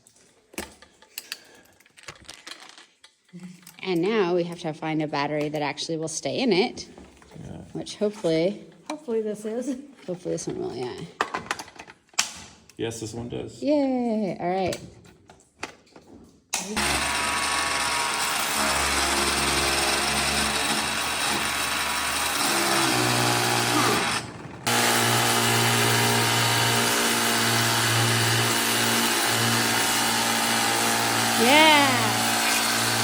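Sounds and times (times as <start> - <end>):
pressure washer motor humming: 16.8 - 33.0.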